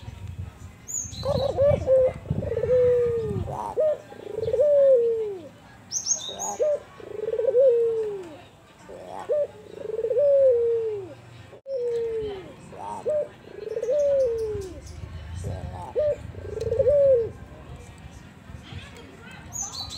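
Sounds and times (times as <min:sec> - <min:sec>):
dove cooing: 0:01.2 - 0:05.5, 0:06.3 - 0:14.8, 0:15.4 - 0:17.4.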